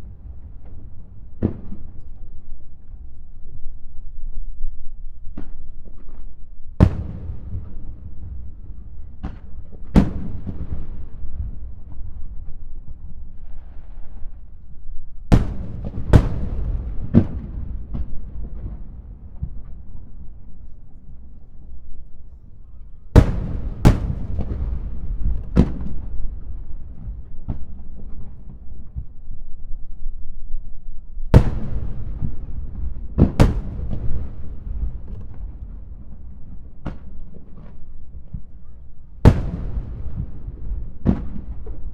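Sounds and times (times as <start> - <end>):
continuous low rumble: 0.0 - 41.9
fireworks booming: 6.8 - 12.6, 15.3 - 29.2, 31.3 - 41.9
firework shells bursting: 15.3 - 19.0, 23.2 - 25.9, 31.4 - 35.5
low rolling rumble: 15.5 - 27.3, 31.3 - 36.5.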